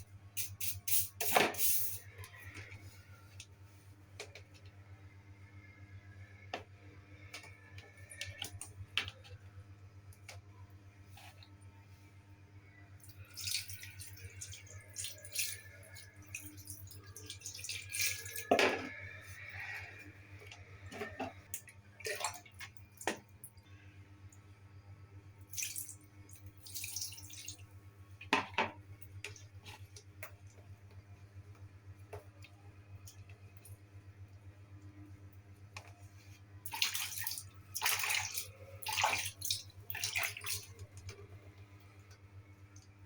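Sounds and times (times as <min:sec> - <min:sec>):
water splashing and dripping: 0:13.0 - 0:18.5, 0:21.5 - 0:23.5, 0:25.4 - 0:27.7, 0:36.6 - 0:41.2.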